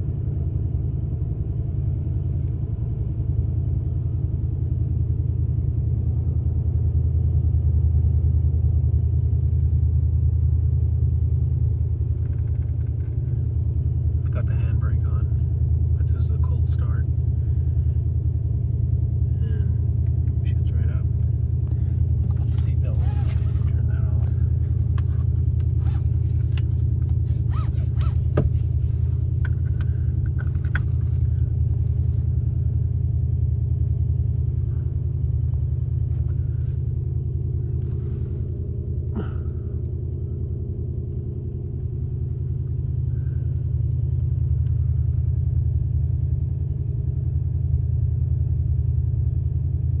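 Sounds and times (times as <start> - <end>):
truck engine idling: 12.8 - 49.9.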